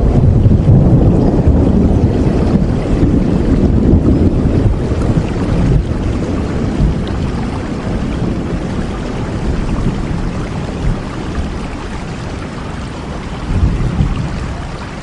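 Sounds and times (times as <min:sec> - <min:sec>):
deep low rumble: 0:00.0 - 0:11.6
steady rain falling: 0:00.0 - 0:15.0.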